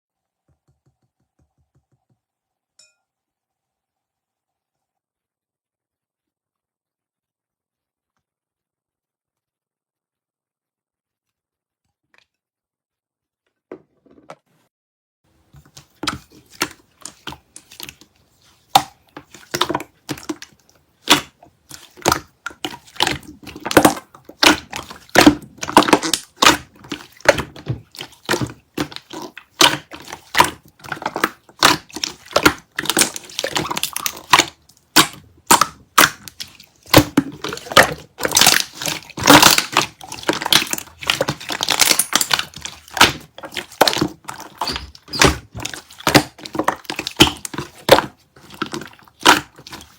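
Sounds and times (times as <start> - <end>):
slime squeezed and stretched: 18.7 - 49.9.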